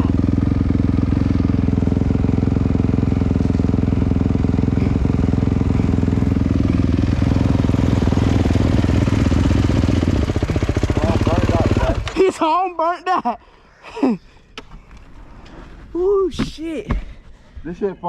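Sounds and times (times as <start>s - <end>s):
dirt bike engine running: 0.0s - 12.6s.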